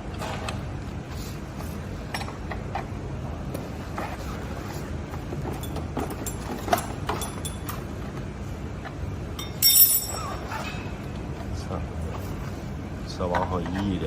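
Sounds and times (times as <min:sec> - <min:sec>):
steady background noise: 0:00.0 - 0:14.0
metal tools clinking and tapping: 0:05.4 - 0:07.8, 0:09.4 - 0:10.8
ringing metallic clatter: 0:09.4 - 0:10.9.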